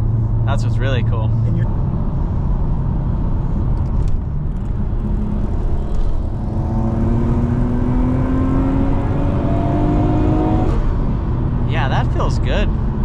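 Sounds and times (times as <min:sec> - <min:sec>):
car engine accelerating: 0:00.0 - 0:13.0
road noise rumble: 0:00.0 - 0:13.0.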